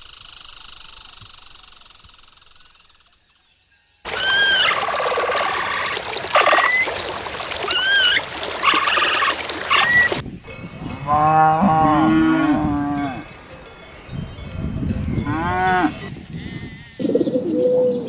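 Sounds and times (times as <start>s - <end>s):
short high bending calls: 4.1s - 10.2s
cow mooing: 10.9s - 13.3s, 15.2s - 16.9s.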